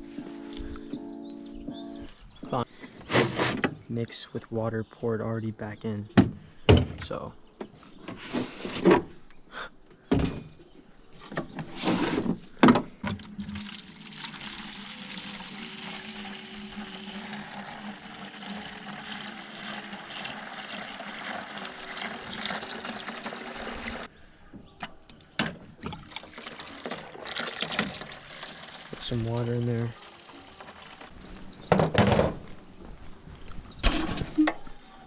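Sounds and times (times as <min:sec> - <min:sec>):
water running into container: 0:13.0 - 0:24.1, 0:25.8 - 0:31.4.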